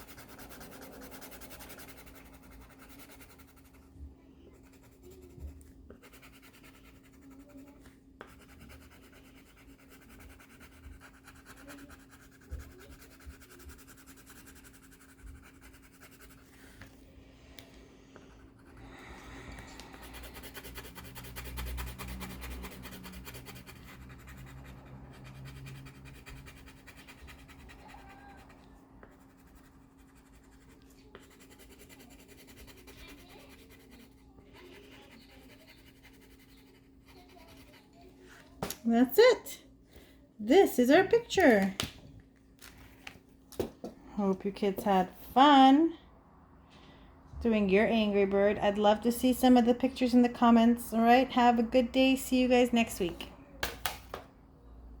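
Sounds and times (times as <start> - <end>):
drawing tool scratching on paper: 0.0 - 17.0, 19.7 - 38.1.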